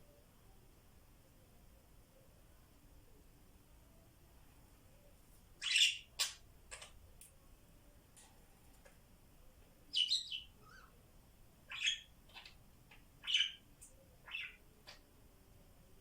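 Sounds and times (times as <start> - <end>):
budgerigars chirping: 5.6 - 6.9, 9.9 - 10.9, 11.7 - 13.6, 14.2 - 15.0.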